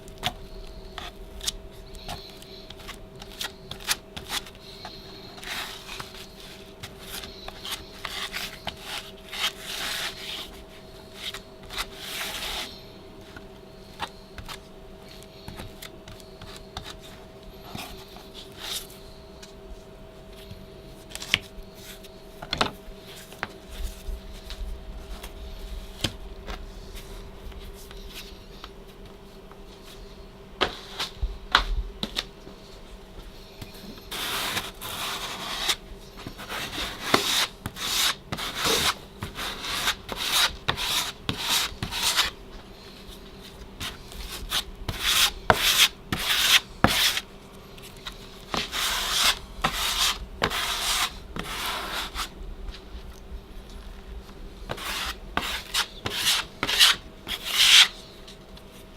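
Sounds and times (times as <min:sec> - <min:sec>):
faint steady hum: 0:00.0 - 0:58.9
drywall knife scraping compound: 0:34.1 - 0:35.8, 0:36.4 - 0:42.3, 0:43.8 - 0:47.2, 0:48.5 - 0:52.3, 0:54.7 - 0:58.0.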